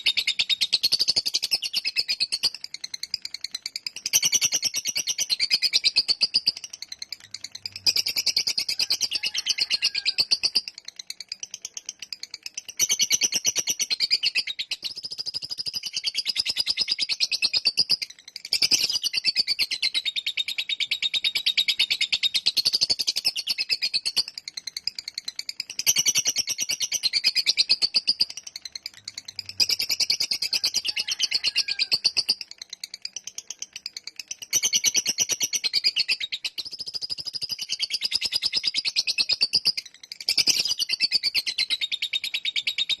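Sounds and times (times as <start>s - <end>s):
lovebird chattering shrill trills: 0.0s - 10.7s, 12.7s - 32.5s.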